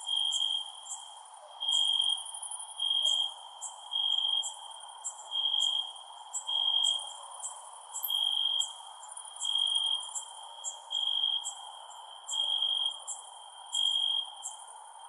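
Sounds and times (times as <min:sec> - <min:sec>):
cricket trilling: 0:00.0 - 0:15.0
steady insect hiss: 0:00.0 - 0:15.0.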